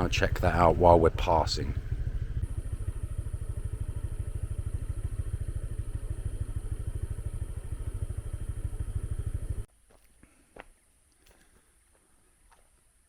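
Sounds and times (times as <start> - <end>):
motorbike engine idling: 0.0 - 9.7.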